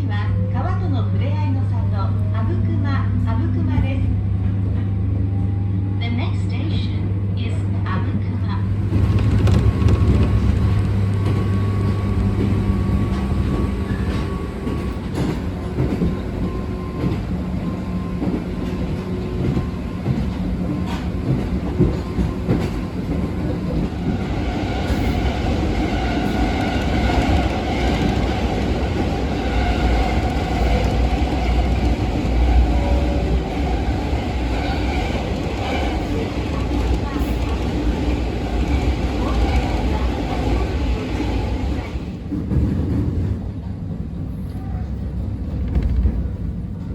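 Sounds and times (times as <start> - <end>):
train rumbling from inside carriage: 0.0 - 46.9.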